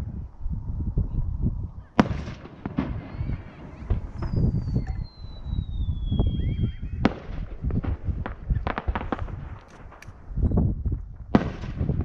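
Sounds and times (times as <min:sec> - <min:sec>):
low rumble of booms: 0:00.0 - 0:12.0
firework bangs and crackles: 0:02.0 - 0:12.0
loud firework crack: 0:02.0 - 0:12.0
firework whistle falling: 0:02.8 - 0:07.1.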